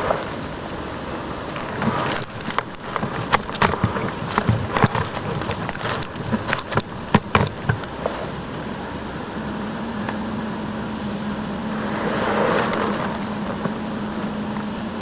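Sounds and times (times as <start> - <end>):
rustling in leaf litter: 0.0 - 15.0
low steady hum: 0.1 - 15.0
songbird chirping: 1.2 - 15.0.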